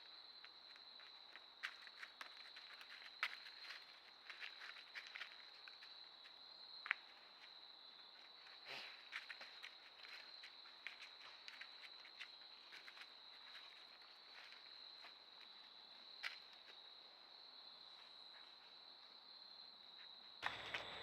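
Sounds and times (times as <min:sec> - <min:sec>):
light ticks and rustles: 0:00.4 - 0:16.9.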